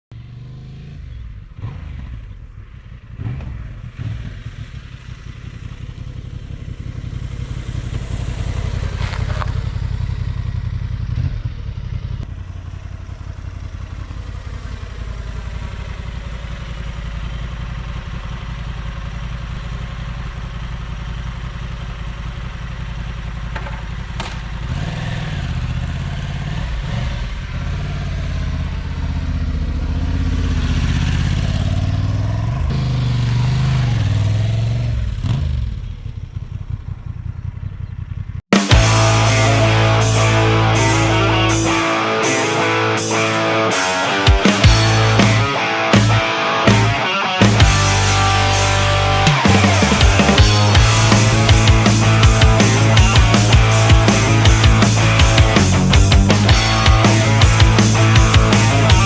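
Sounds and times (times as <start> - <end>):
motorcycle engine running: 0.1 - 59.0
knocks and clatter: 23.5 - 24.6.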